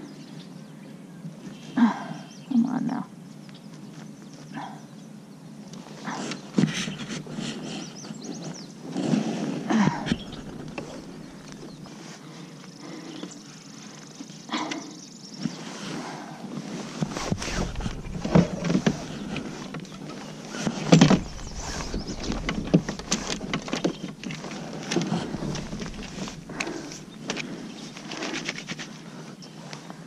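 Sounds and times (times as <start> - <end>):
low wind rumble on microphone: 6.7 - 12.1, 16.2 - 29.6
knocks and clatters on kayak: 9.9 - 11.8, 17.0 - 28.8.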